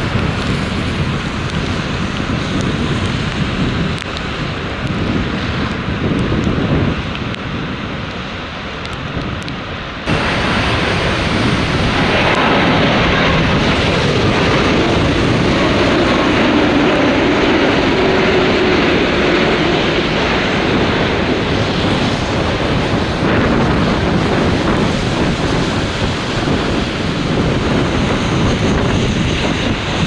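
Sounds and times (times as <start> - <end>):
jet airliner engines rushing: 0.0 - 30.0
wind buffeting microphone: 0.0 - 30.0.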